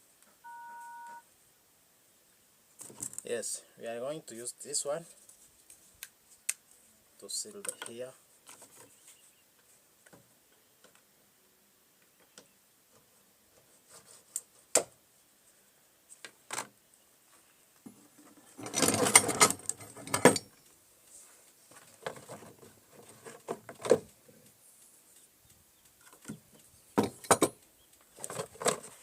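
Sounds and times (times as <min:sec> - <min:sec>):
rustling and scraping: 0:02.8 - 0:03.4, 0:04.3 - 0:10.3, 0:12.9 - 0:14.9, 0:16.0 - 0:25.3, 0:26.0 - 0:29.0
tools clicking and knocking: 0:18.6 - 0:20.7, 0:27.0 - 0:28.9.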